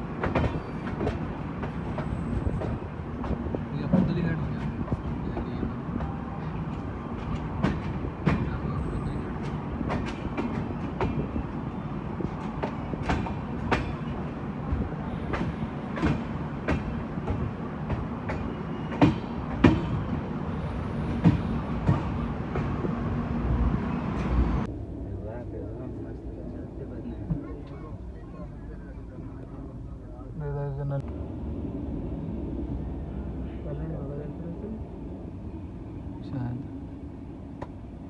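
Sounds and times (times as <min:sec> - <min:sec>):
train coaches rumbling: 0:00.0 - 0:38.0
wheels clacking over rail joints: 0:09.3 - 0:11.2.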